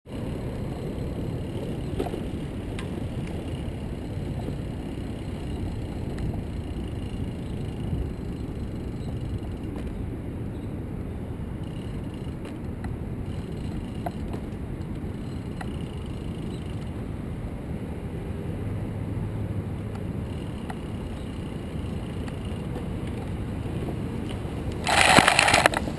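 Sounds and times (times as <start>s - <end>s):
road noise: 0.0s - 25.9s
wind rumble on microphone: 0.1s - 25.9s
light clicks and rattles: 24.2s - 25.9s.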